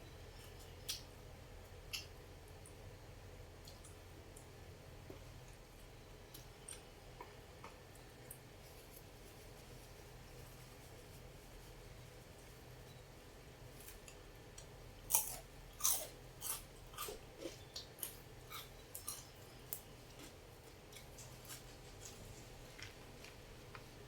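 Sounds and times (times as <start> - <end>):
person chewing crunchy food: 15.1 - 19.5, 20.1 - 24.0.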